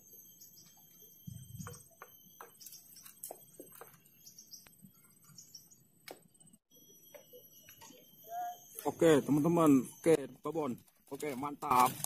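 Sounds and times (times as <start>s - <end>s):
small birds chirping: 0.0s - 10.6s
thin high tone: 6.6s - 12.0s.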